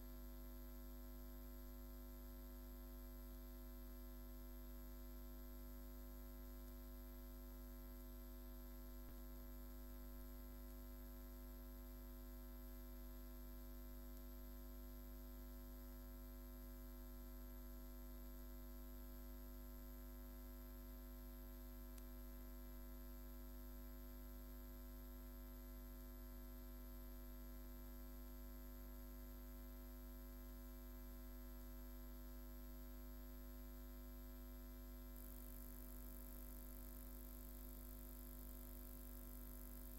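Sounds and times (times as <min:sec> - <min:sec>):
electrical mains hum: 0:00.0 - 0:39.9
faint click: 0:21.9 - 0:22.1.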